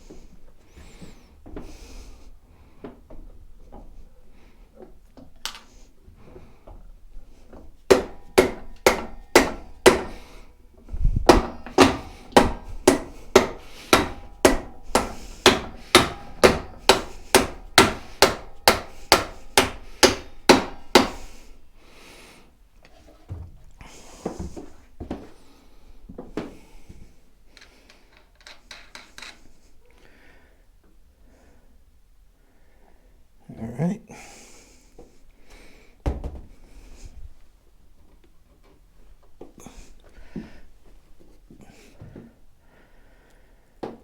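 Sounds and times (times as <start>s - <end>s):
hammer blows: 7.9s - 10.5s, 11.1s - 21.6s
quiet clinks of handling: 27.5s - 29.8s.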